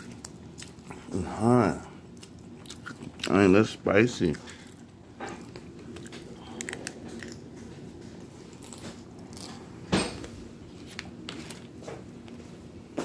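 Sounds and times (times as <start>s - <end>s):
person chewing food: 0.0s - 3.5s, 4.2s - 9.8s
steady low hum: 0.0s - 13.0s.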